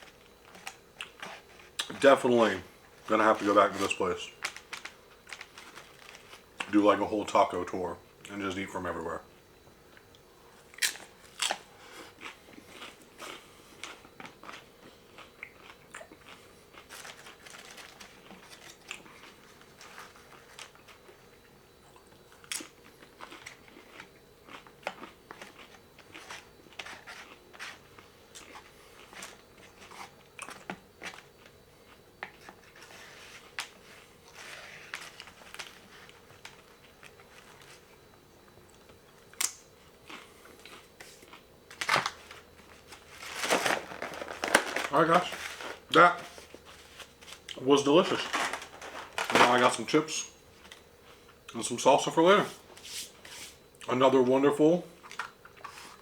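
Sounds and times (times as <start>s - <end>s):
person chewing and biting food: 10.8s - 17.4s, 21.9s - 30.7s.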